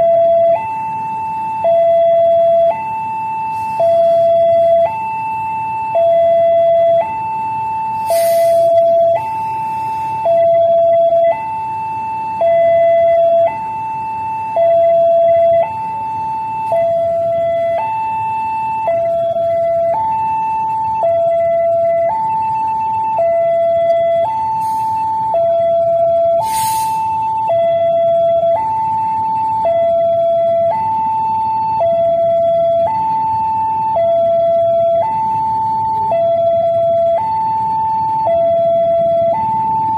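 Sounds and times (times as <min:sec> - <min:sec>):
level crossing two-tone alarm: 0:00.0 - 0:39.9
short hiss: 0:08.1 - 0:08.6, 0:26.4 - 0:27.0.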